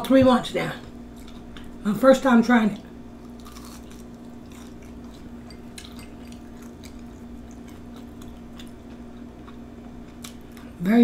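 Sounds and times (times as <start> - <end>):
steady low hum: 0.0 - 11.0
crunchy chewing: 1.1 - 1.8, 3.2 - 10.8.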